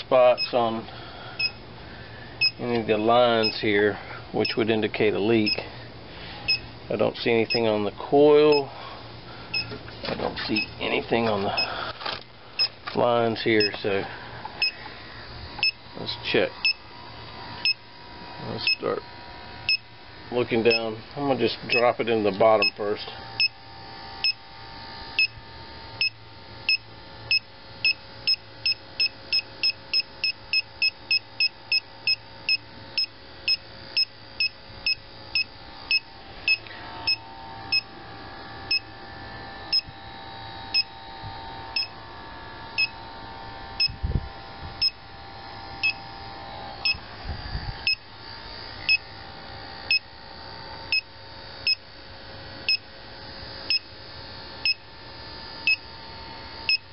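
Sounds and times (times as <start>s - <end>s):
leak detector short high beeps: 1.4s - 1.6s, 2.4s - 2.6s, 6.5s - 6.7s, 9.5s - 9.7s, 14.6s - 14.8s, 15.6s - 15.8s, 26.0s - 37.9s, 42.8s - 43.0s, 45.8s - 46.0s.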